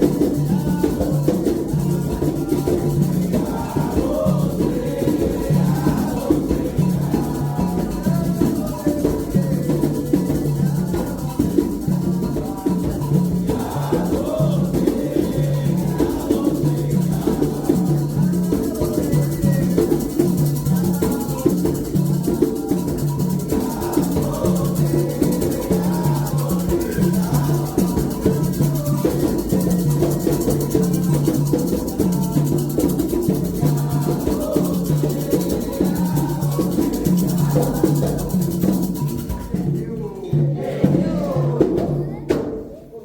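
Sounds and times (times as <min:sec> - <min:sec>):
hand drums playing rhythm: 0:00.0 - 0:43.0.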